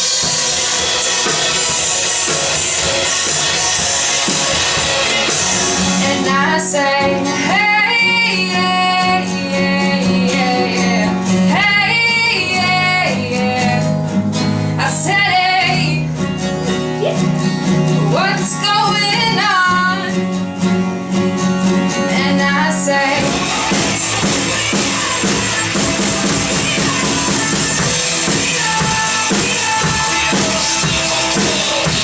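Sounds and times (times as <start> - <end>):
guitar: 0.0 - 32.0
woman singing: 5.9 - 14.1, 14.8 - 16.1, 18.1 - 20.2, 21.9 - 32.0.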